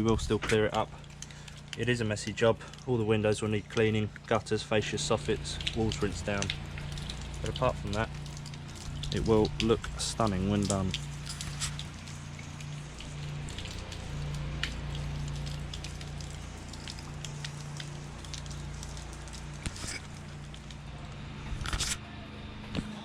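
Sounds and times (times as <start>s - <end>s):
low machine hum: 0.0s - 23.0s
crackles and clicks: 5.5s - 22.0s.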